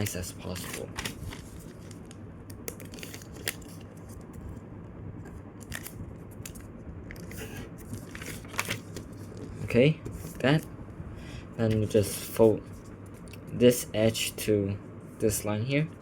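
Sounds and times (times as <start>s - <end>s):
steady low hum: 0.0s - 16.0s
paper being folded and creased: 0.5s - 2.2s, 2.8s - 4.2s, 7.2s - 10.4s.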